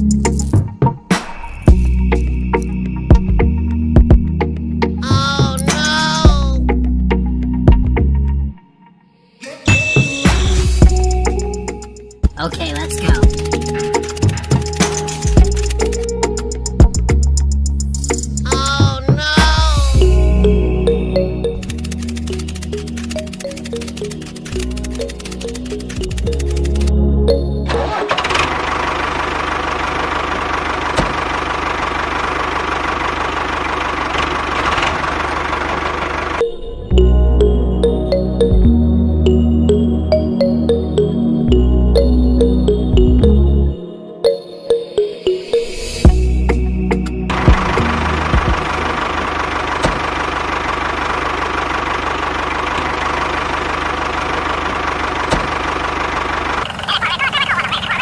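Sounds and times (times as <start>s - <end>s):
music: 0.0s - 28.3s, 36.4s - 49.0s
small engine rattling: 12.6s - 18.5s, 21.6s - 26.9s, 27.8s - 36.4s, 47.3s - 58.0s
sharp clicks: 13.0s - 16.4s, 21.6s - 26.9s.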